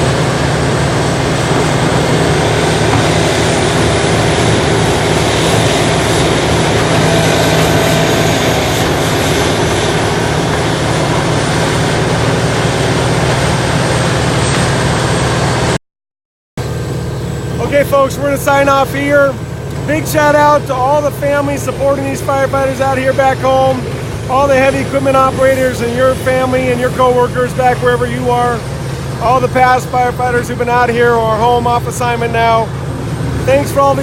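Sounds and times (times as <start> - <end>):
faint high whine: 0.0 - 15.7
wood grinder diesel drone: 0.0 - 15.8, 16.6 - 34.0.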